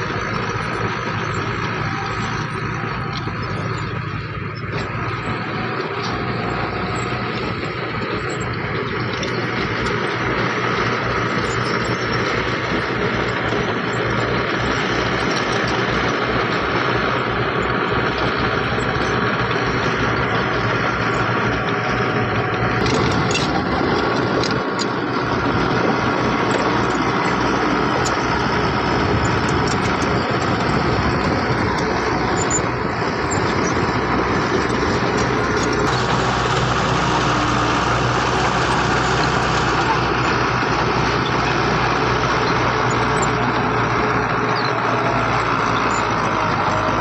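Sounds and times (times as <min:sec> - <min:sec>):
heavy diesel engine running: 0:00.0 - 0:47.0.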